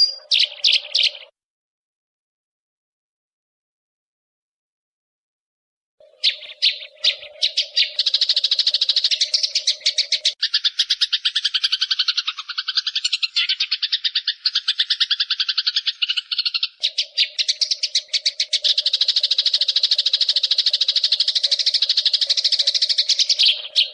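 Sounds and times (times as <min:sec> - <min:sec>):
songbird chattering trill: 0:00.0 - 0:01.3, 0:06.0 - 0:23.9.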